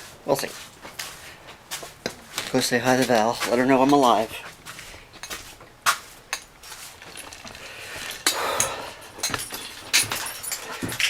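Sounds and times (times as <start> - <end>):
rustling: 0.0 - 11.0
metallic clinks and jingles: 5.2 - 5.6, 6.3 - 11.0.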